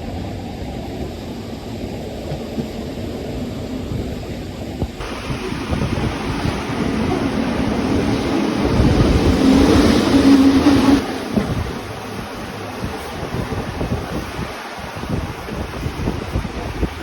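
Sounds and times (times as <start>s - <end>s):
train hum: 0.0s - 17.0s
train rushing rumble: 0.0s - 17.0s.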